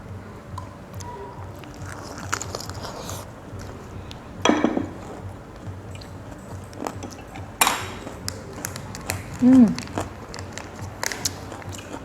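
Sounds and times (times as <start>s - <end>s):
person chewing: 1.0s - 12.0s
sharp crunches: 1.6s - 3.8s, 7.6s - 12.0s
mouth clicks: 5.0s - 12.0s.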